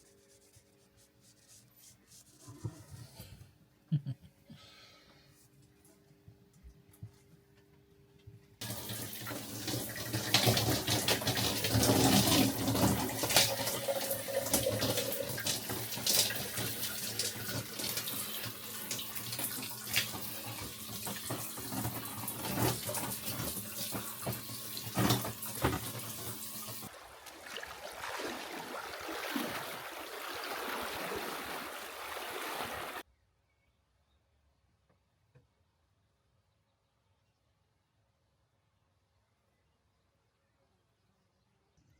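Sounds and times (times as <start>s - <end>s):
running splashing water: 8.6s - 33.0s.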